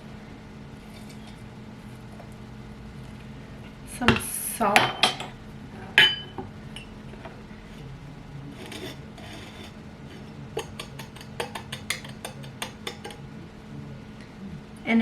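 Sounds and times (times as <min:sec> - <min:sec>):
glassware clinking: 0:04.8 - 0:07.4, 0:08.5 - 0:13.8
gritty rubbing of salt: 0:07.5 - 0:13.3
light clicks of utensils: 0:08.6 - 0:13.2.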